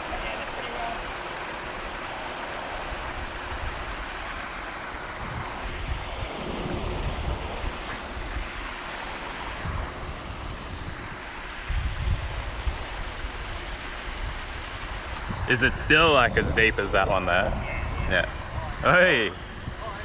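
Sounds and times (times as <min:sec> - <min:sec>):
wind hissing across microphone: 0:00.0 - 0:20.0.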